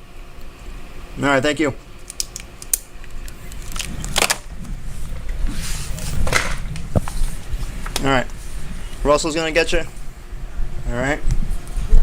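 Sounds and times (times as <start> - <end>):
rustling and handling noise: 1.9 - 9.1
low rumble: 3.3 - 12.0.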